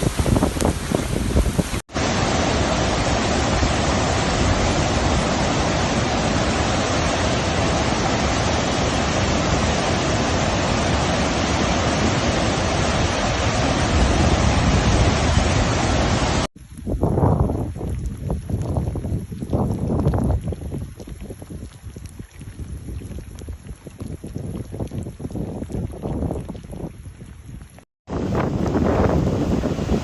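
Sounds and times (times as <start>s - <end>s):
heavy rain rushing: 0.0s - 16.5s.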